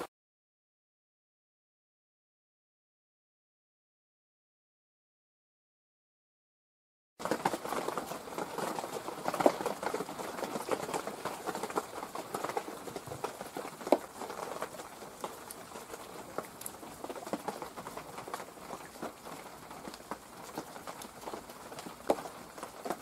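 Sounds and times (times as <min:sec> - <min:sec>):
rain pattering on dry leaves: 0:07.2 - 0:23.0.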